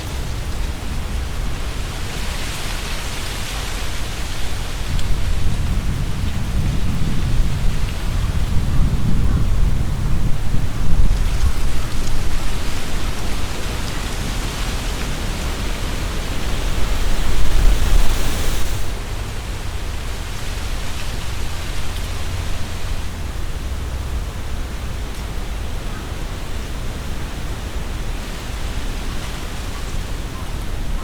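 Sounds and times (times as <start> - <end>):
leaves rustling: 0.0 - 8.6, 10.5 - 23.6
low rumble of wind: 0.0 - 31.0.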